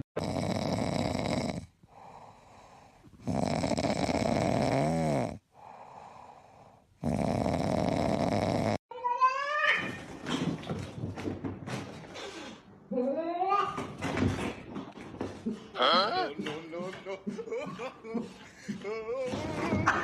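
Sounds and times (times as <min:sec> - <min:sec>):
pet snoring: 0:00.0 - 0:08.8
quiet breaths: 0:00.3 - 0:08.8.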